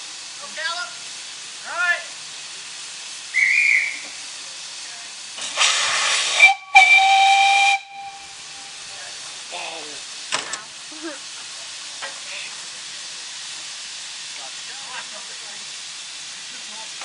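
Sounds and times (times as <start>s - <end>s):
steam hissing: 0.0s - 17.0s
steam locomotive whistle: 3.3s - 4.1s, 5.5s - 8.8s.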